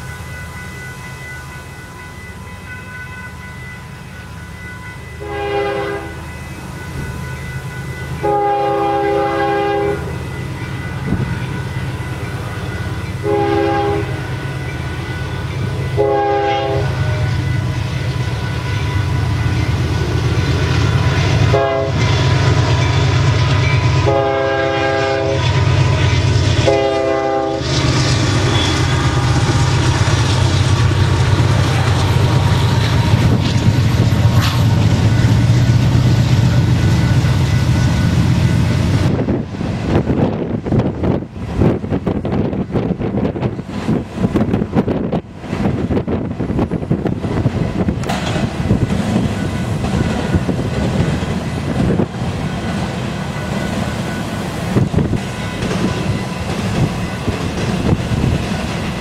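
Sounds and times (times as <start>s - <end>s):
freight train rumbling past: 0.0s - 59.0s
locomotive air horn: 5.2s - 6.2s, 8.2s - 10.1s, 13.2s - 14.2s, 16.0s - 17.4s, 21.4s - 22.0s, 24.0s - 25.6s, 26.6s - 29.6s
train wheels clattering on rail: 9.4s - 59.0s.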